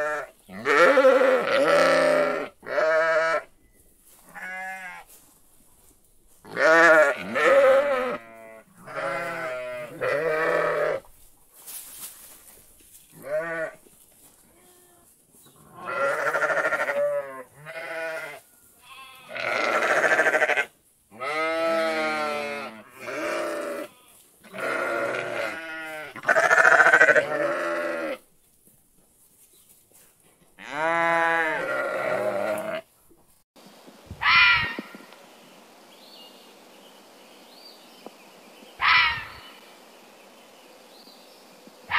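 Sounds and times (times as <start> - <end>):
livestock calling: 0.0 - 3.5, 6.5 - 11.1, 14.5 - 28.2, 34.1 - 35.1, 38.8 - 39.7.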